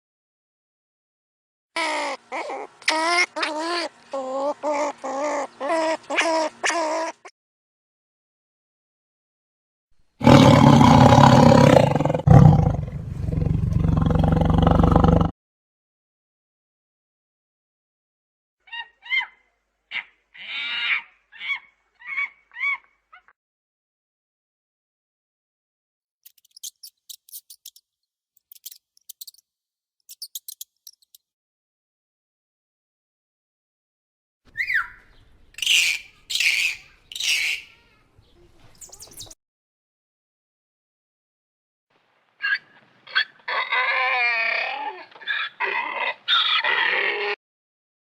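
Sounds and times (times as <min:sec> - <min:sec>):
big cat roaring: 0:10.2 - 0:15.3
mouse squeaking: 0:26.3 - 0:27.8, 0:28.4 - 0:29.4, 0:30.1 - 0:31.2, 0:38.8 - 0:39.4.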